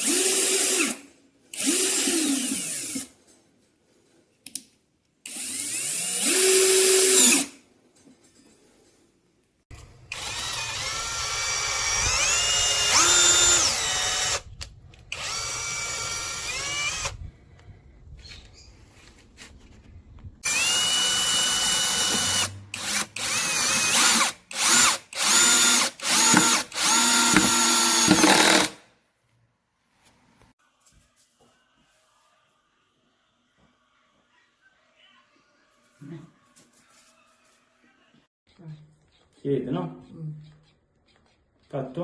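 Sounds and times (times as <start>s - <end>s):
cordless drill motor whining: 5.3s - 7.5s, 9.8s - 17.2s, 20.4s - 28.8s.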